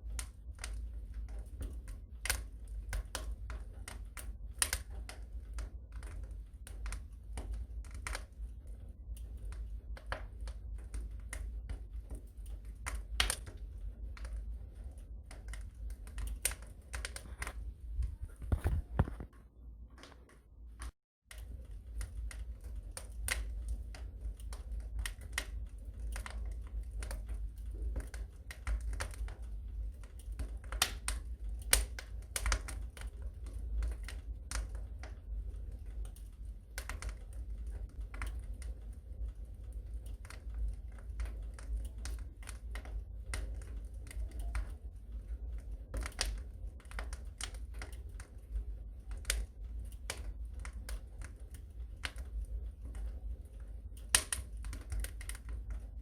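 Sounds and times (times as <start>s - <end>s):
wood fire crackling: 0.0s - 56.0s
low rumble: 8.8s - 19.9s.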